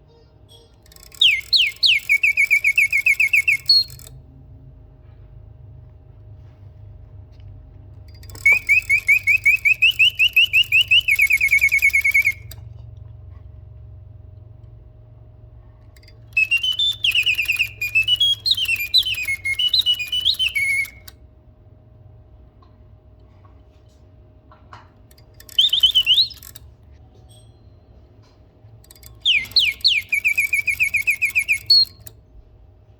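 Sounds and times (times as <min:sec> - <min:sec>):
mechanical bird whistling: 0:00.8 - 0:04.2, 0:08.1 - 0:12.7, 0:16.0 - 0:21.2, 0:25.1 - 0:26.8, 0:28.8 - 0:32.3.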